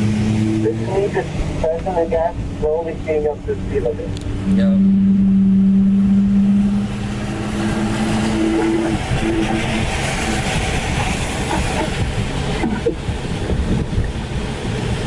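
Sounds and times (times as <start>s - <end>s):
car engine drone: 0.0s - 15.0s
tyre and wind noise: 8.2s - 15.0s.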